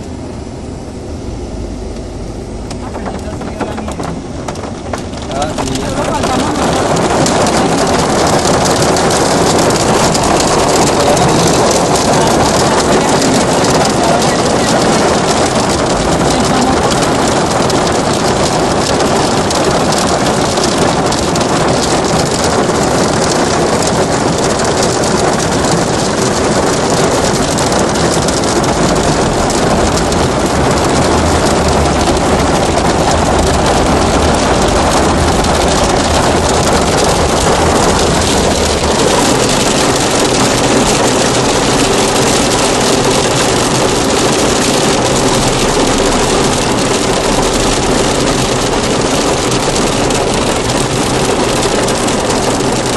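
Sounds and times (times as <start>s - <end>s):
low rumble: 0.0s - 52.9s
hail and rain clattering: 2.7s - 52.9s.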